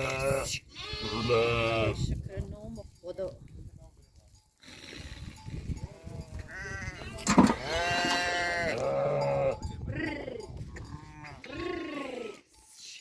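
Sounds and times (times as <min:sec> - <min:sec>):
livestock bleating: 0:00.0 - 0:02.1, 0:06.0 - 0:09.7, 0:10.9 - 0:12.4.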